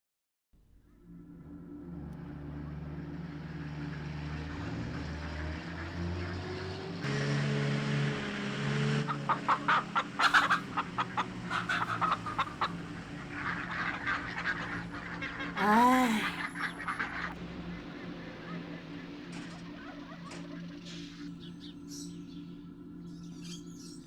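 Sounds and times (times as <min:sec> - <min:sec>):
chickens clucking: 0:10.2 - 0:12.7.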